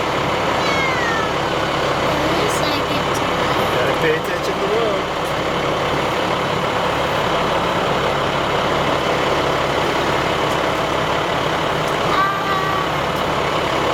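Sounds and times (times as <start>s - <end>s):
fire truck engine running: 0.0s - 13.9s
road noise: 0.0s - 13.9s
brief high tone: 12.1s - 13.0s.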